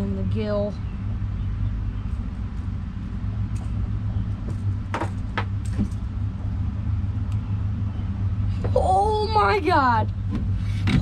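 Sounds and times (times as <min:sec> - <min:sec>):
steady low rumble: 0:00.0 - 0:11.0
short knocks or rattles: 0:04.5 - 0:06.0.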